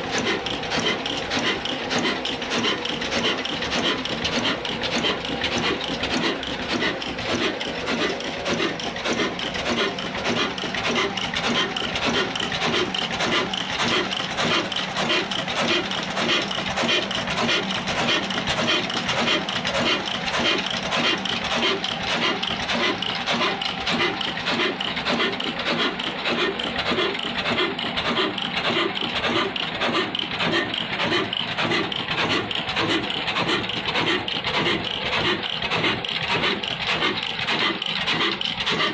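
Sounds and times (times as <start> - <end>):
diesel engine clattering: 0.0 - 38.9.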